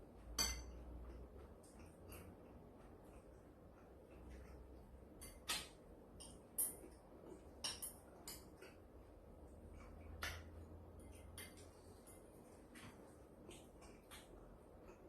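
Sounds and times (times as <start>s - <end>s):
utensils clinking against dishes: 0.3s - 1.0s.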